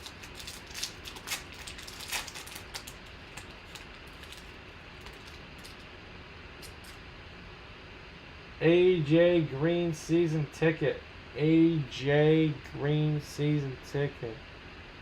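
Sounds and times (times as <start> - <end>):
trading cards clicking and rustling: 0.0 - 5.9.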